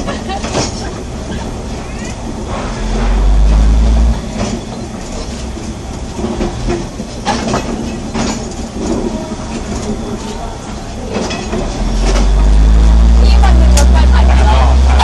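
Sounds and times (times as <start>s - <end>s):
train running on track: 0.0s - 15.0s
loud low rumble: 2.5s - 4.4s, 11.6s - 15.0s.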